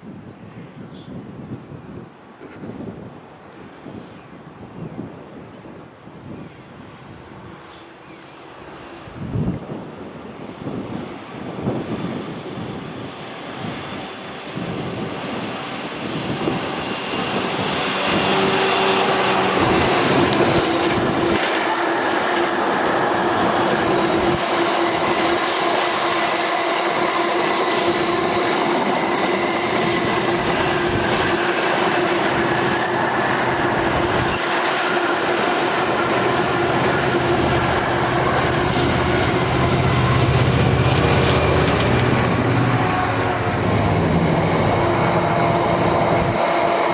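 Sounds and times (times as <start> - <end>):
train wheels clattering on rails: 16.4 - 46.9.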